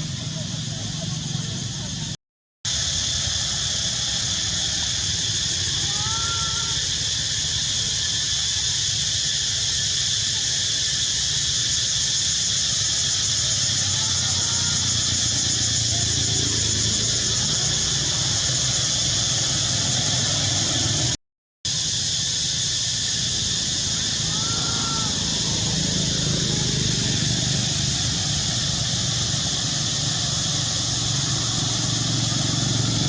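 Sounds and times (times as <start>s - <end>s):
faint squeaky calls: 5.4s - 7.3s, 13.1s - 20.1s, 23.8s - 26.8s.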